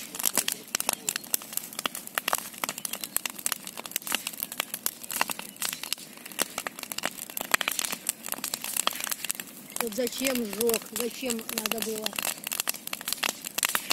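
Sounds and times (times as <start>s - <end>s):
bonfire crackling: 0.0s - 13.9s.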